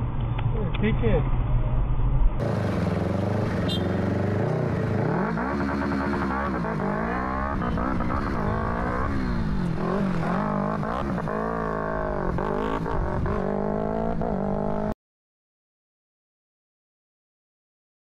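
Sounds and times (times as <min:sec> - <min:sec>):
vehicle engine revving hard: 0:02.4 - 0:11.8.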